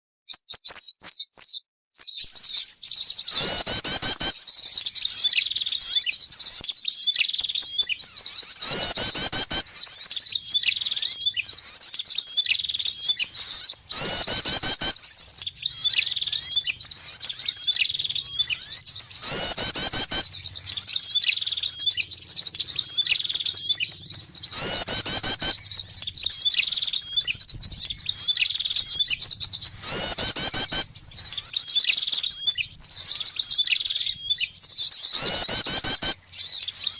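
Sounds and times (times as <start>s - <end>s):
songbirds twittering and chirping: 0.3s - 36.9s
repeating bird call: 0.4s - 36.9s.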